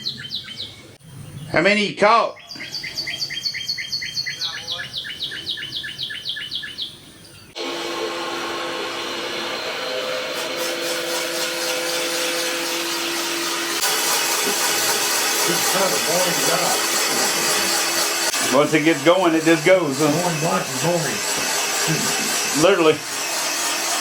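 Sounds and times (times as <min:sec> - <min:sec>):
songbird chirping: 0:00.0 - 0:07.6
cylinder boring machine humming: 0:07.6 - 0:24.0.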